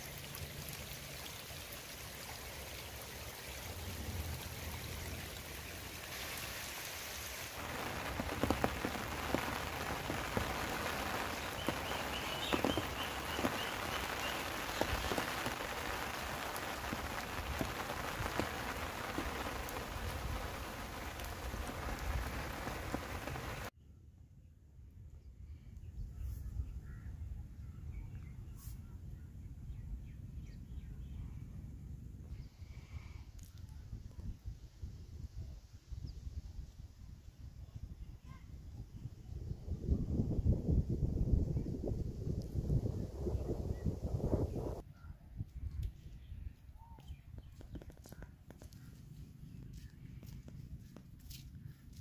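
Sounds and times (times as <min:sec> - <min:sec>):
rain on mud and puddles: 0:00.0 - 0:23.7, 0:47.6 - 0:52.0.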